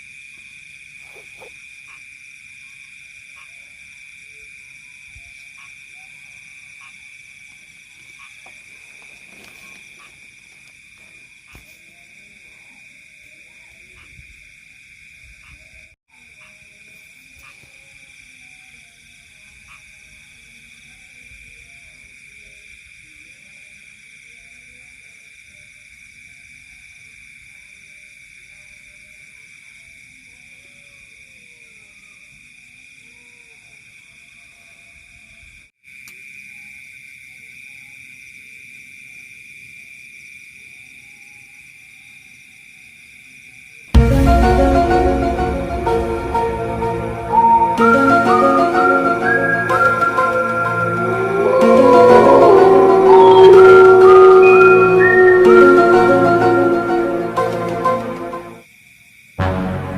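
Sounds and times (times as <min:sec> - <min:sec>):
insects trilling: 0:00.0 - 0:43.9, 0:58.6 - 0:59.4.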